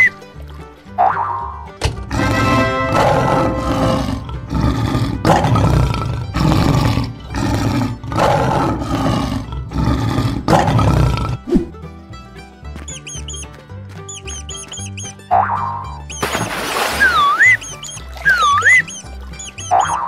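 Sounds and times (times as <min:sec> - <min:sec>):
lion roaring: 0:02.1 - 0:11.5.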